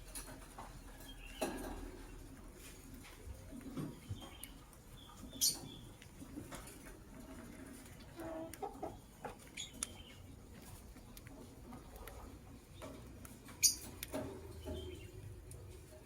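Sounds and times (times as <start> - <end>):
lovebirds chirping: 3.5 - 6.3, 8.2 - 10.6, 11.9 - 15.7.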